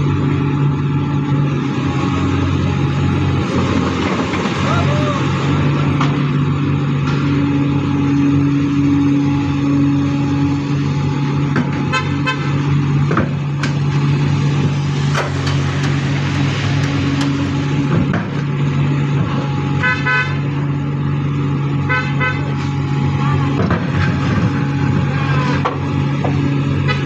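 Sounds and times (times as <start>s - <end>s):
diesel engine running: 0.0s - 27.0s
vehicle horn toots: 11.8s - 12.6s, 19.8s - 20.6s, 21.8s - 23.6s, 26.8s - 27.0s.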